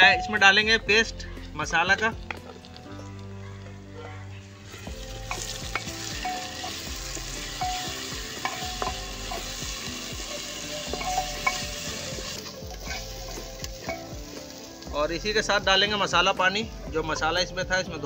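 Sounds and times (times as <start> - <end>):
paste sizzling in hot oil: 4.6 - 17.3
spatula scraping and knocking pot: 5.2 - 14.4.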